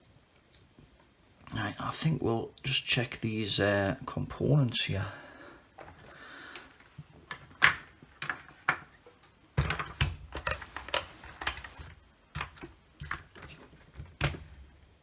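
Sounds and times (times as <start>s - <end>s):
small tools clicking on workbench: 9.8s - 13.5s.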